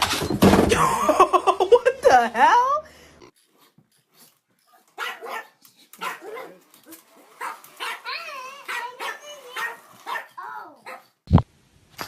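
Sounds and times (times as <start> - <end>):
dog yipping: 4.7 - 11.2.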